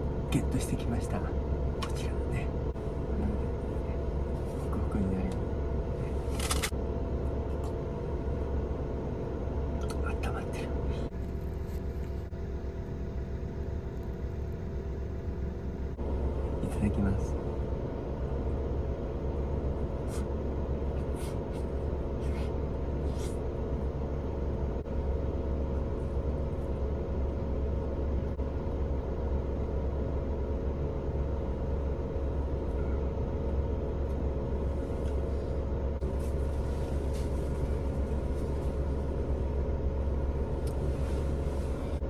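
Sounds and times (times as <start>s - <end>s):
van engine idling: 30.0s - 42.0s.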